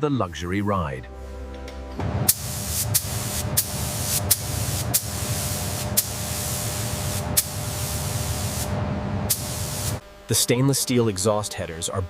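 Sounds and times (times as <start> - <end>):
low rumble: 1.9 - 9.9
steady spraying hiss: 2.3 - 12.0.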